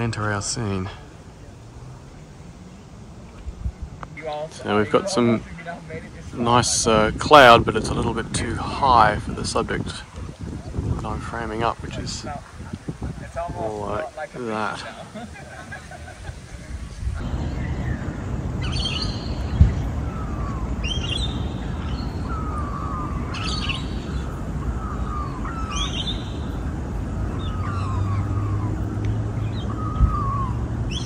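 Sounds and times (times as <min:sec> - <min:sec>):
steady low rumble: 0:00.0 - 0:14.0, 0:14.8 - 0:31.0
birds calling: 0:00.0 - 0:31.0
sharp thump: 0:19.5 - 0:19.9.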